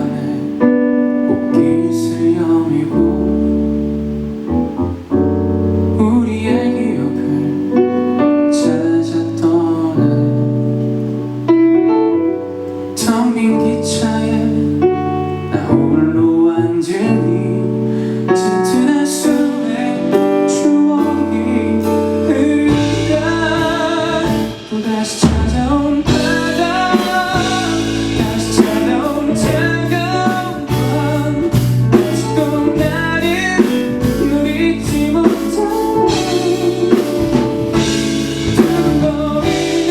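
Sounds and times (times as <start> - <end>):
man singing: 0.0 - 3.9, 5.8 - 11.1, 12.8 - 39.9
guitar: 0.0 - 39.9
keyboard: 0.0 - 39.9
deep bass: 21.1 - 39.9.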